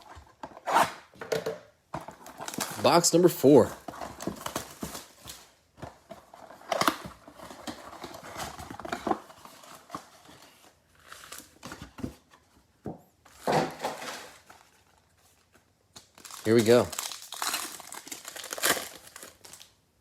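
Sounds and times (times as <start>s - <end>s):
plastic wrap crinkling and tearing: 15.9s - 19.8s.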